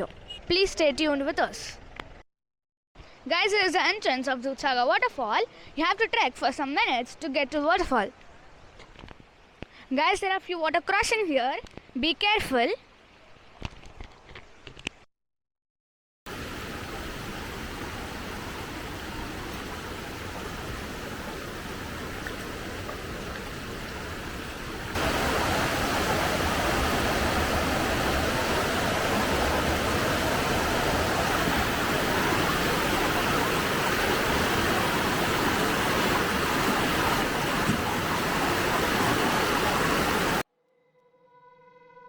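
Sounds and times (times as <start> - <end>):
rushing water: 16.3 - 40.4.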